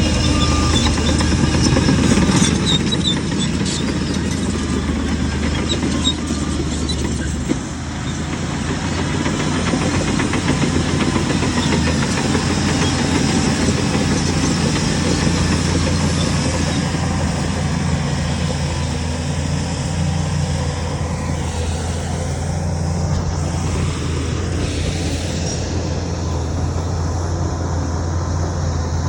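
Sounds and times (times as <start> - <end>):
heavy diesel engine running: 0.0 - 29.0.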